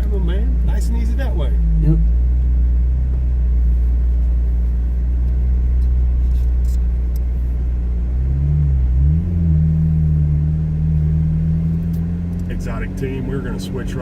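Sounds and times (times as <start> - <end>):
car engine drone from inside cabin: 0.0 - 14.0.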